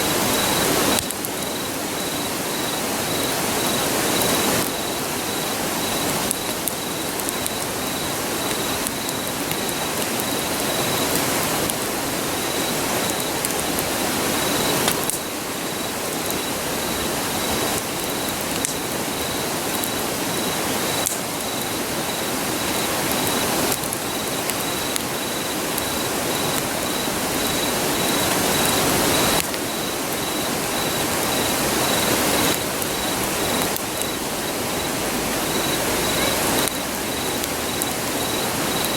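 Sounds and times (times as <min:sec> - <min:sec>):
campfire crackling: 0:00.0 - 0:38.9
insect chirping: 0:00.0 - 0:38.9
river rushing: 0:19.4 - 0:38.9.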